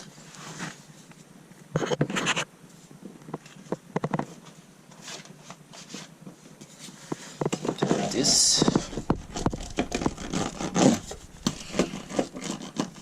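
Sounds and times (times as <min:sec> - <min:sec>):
mat crackling and scraping: 0:00.0 - 0:13.0
clicks and rustles: 0:03.2 - 0:13.0.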